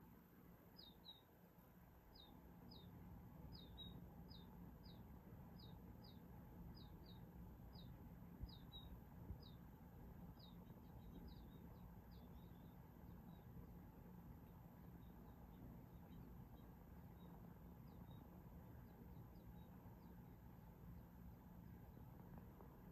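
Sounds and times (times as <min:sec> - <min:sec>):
songbirds chirping: 0:00.0 - 0:22.9.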